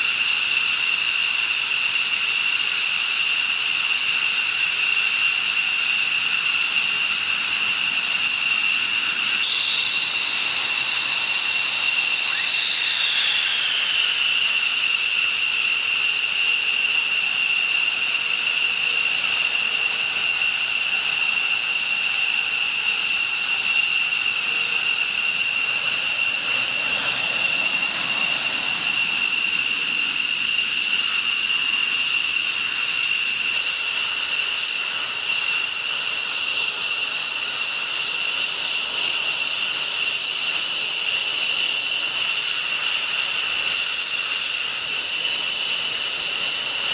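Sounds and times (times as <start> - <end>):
jet engine whine: 0.0 - 46.9
jet engine rushing hiss: 4.3 - 33.7.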